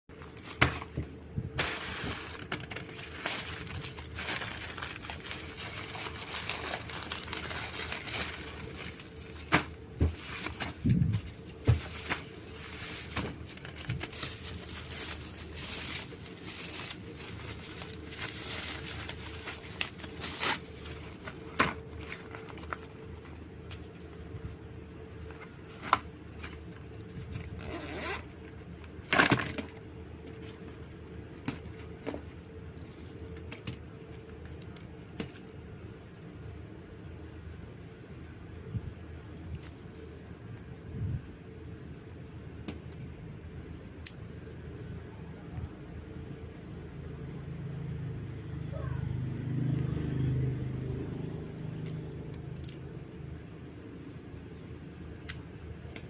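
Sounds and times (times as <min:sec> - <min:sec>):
packaging rustling and tearing: 0:00.1 - 0:24.1.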